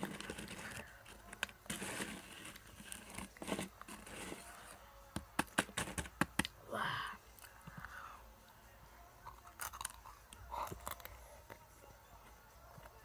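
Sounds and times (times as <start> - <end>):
crunching dry snack: 9.3 - 11.2.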